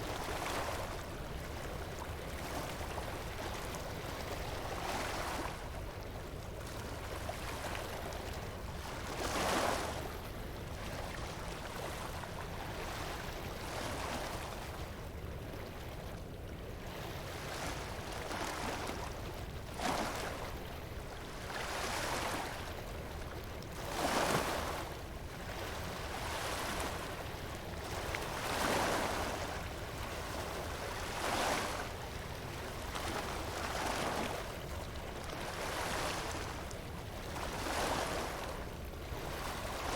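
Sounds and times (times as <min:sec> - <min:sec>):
waves breaking on beach: 0:00.0 - 0:08.2, 0:08.8 - 0:10.2, 0:17.3 - 0:20.6, 0:21.3 - 0:22.9, 0:23.7 - 0:39.9.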